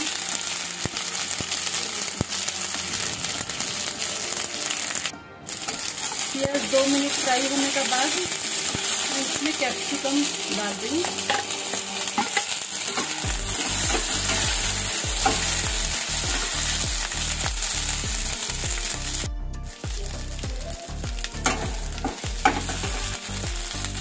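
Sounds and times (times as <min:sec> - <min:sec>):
vegetables sizzling in hot oil: 0:00.0 - 0:24.0
metal spatula scraping pan: 0:05.6 - 0:16.7.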